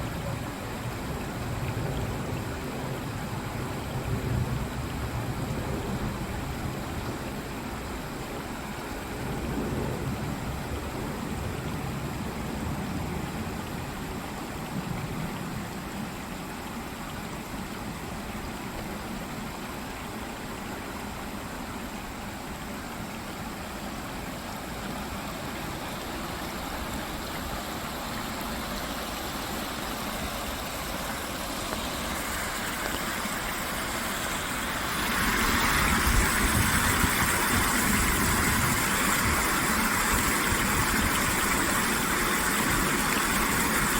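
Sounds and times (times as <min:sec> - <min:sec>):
stream water rushing: 0:00.0 - 0:43.9.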